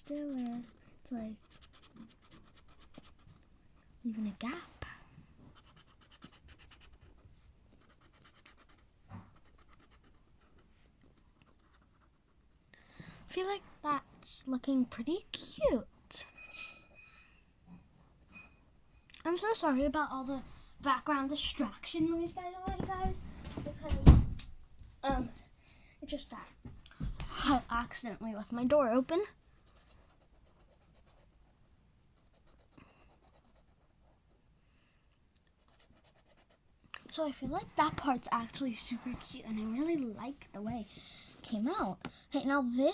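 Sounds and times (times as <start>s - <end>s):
colouring strokes scratching paper: 0.0s - 3.4s, 5.5s - 12.5s, 28.6s - 34.3s, 35.5s - 36.7s.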